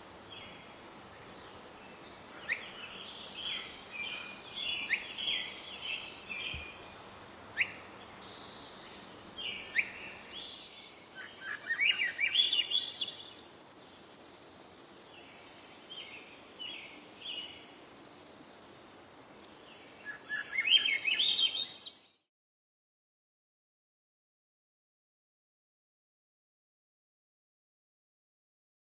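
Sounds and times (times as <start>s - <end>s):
songbirds singing: 0.0s - 22.2s.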